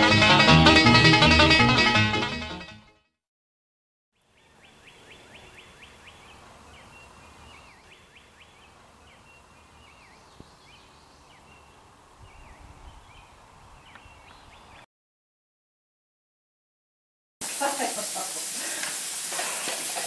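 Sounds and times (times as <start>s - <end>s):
faint outdoor hiss: 4.2s - 14.8s, 17.4s - 20.0s
songbird singing: 4.2s - 14.9s.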